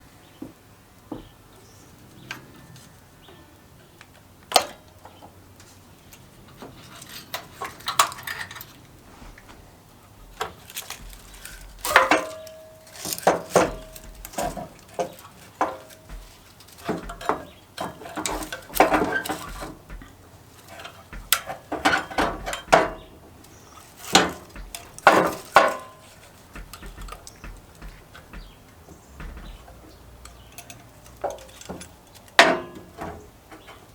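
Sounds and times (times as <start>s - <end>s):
metal tools clinking: 6.4s - 9.0s, 10.4s - 23.1s, 29.2s - 33.9s
sharp knocks ringing like metal: 10.3s - 33.9s.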